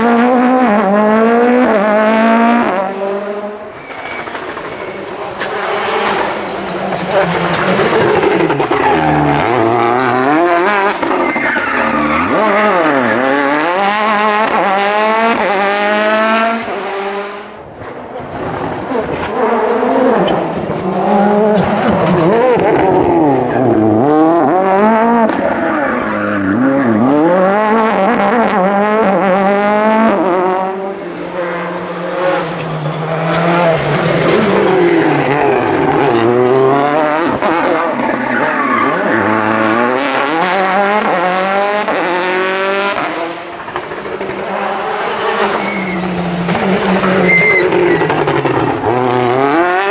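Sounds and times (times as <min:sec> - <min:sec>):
rally car engines revving: 0:00.0 - 0:49.9
tyres skidding: 0:03.4 - 0:16.1, 0:30.8 - 0:49.9.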